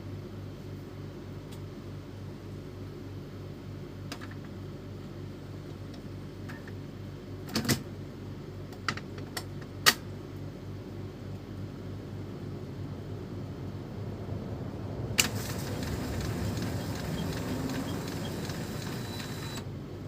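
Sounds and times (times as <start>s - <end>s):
printer sharp clicks: 15.2s - 19.7s
printer mechanism humming: 15.2s - 19.8s.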